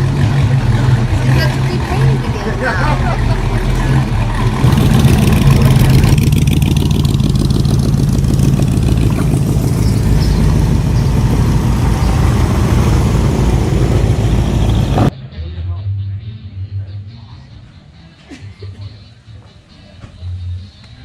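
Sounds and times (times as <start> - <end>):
car engine running: 0.0 - 15.1.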